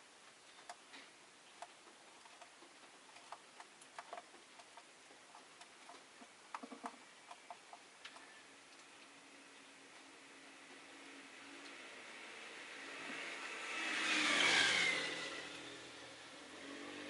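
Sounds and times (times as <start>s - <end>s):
lovebirds clicking and tapping: 0.3s - 9.2s.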